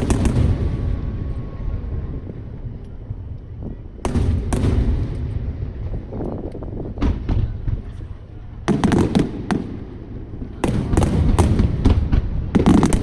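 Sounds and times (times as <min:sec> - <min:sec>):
fireworks cracking and booming: 0:00.0 - 0:13.0.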